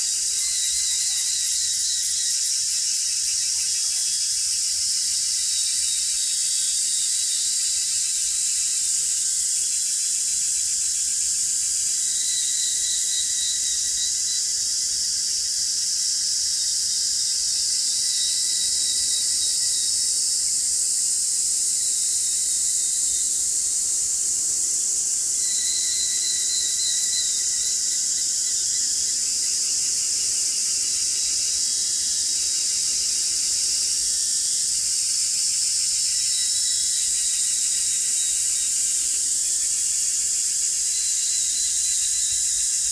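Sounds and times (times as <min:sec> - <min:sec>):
cicadas buzzing: 0:00.0 - 0:42.9
insect pulsing trill: 0:00.1 - 0:04.6, 0:23.8 - 0:34.1.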